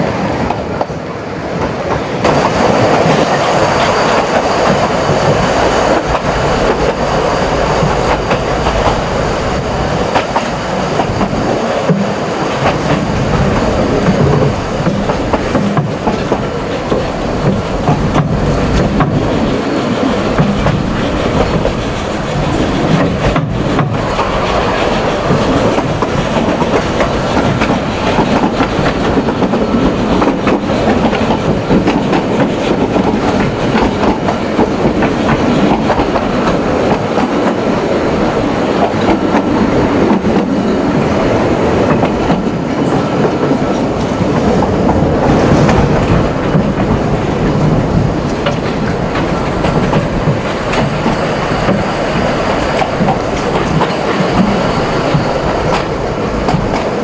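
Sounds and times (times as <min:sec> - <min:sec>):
train running on track: 0:00.0 - 0:57.0
wheels clicking on rails: 0:00.0 - 0:57.0.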